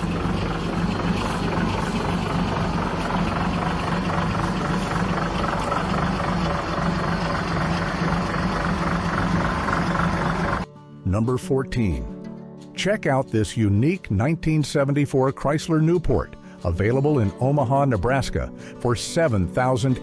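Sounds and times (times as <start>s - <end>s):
car engine running: 0.0s - 10.6s.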